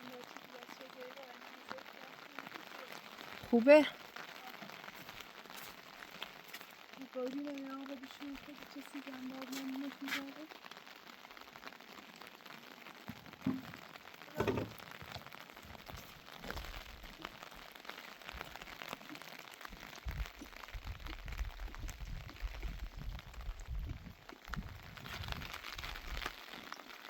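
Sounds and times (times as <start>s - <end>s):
rain pattering: 0.0s - 27.0s
loud knocks: 13.4s - 13.8s.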